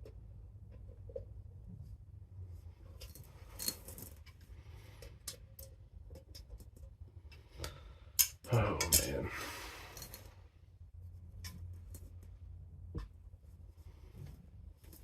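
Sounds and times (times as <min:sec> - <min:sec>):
low steady hum: 0:00.0 - 0:15.0
helmet hardware clinking: 0:03.0 - 0:04.3
helmet hardware rattle: 0:03.0 - 0:04.3.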